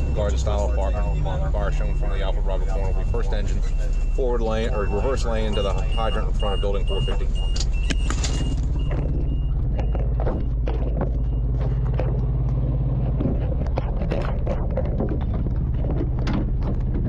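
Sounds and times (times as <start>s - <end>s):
fire engine motor running: 0.0s - 17.0s
knocks and clatter of gear: 7.4s - 17.0s.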